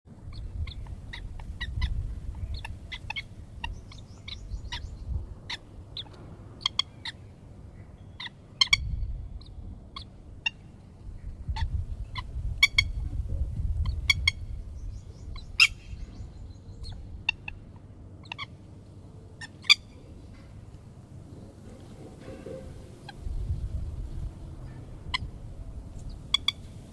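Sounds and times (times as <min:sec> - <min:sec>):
bird calling sharp notes: 0:26.2 - 0:26.8.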